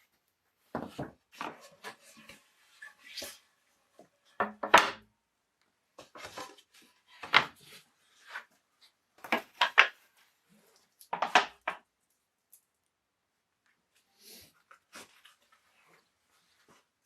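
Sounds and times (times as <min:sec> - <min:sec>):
objects knocking on wooden surface: 0:04.4 - 0:05.0.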